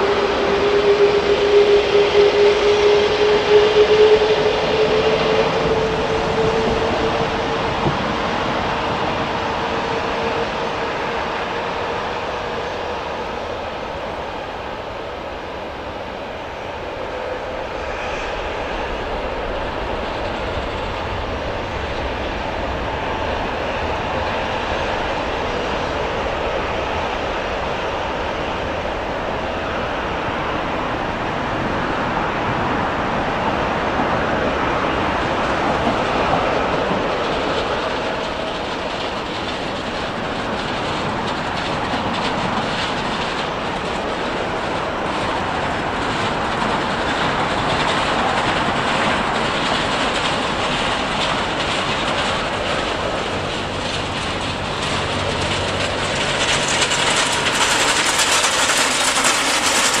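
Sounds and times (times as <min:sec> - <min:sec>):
train wheels clattering: 0:00.0 - 0:14.3, 0:34.0 - 1:00.0
train rolling rumble: 0:00.0 - 1:00.0.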